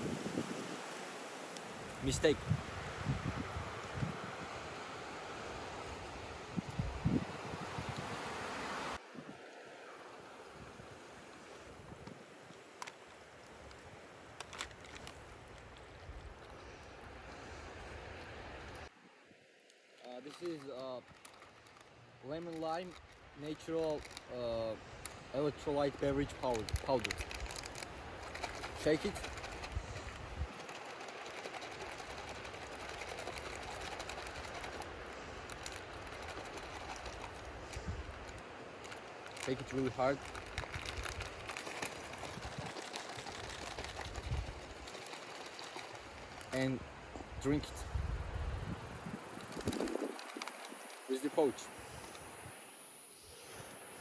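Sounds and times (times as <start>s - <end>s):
drink pouch being shaken: 12.6s - 16.5s, 20.0s - 46.6s, 49.2s - 51.6s.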